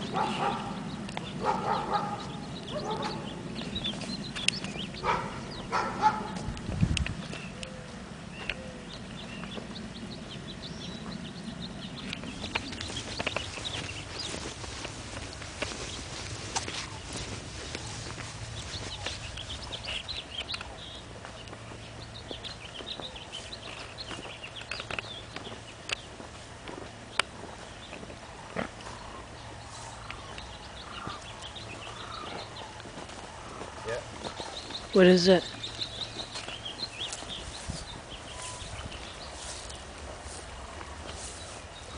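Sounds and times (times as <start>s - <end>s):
bird chirping: 0.0s - 41.9s
steady low rush: 0.0s - 41.9s
sharp clicks and crunches: 23.6s - 26.1s.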